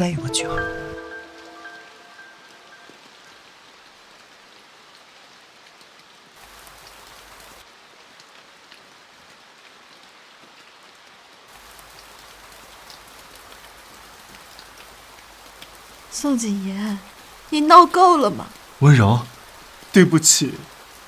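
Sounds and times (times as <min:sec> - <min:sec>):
steady rain falling: 0:00.0 - 0:21.0
raindrops ticking: 0:11.6 - 0:21.0.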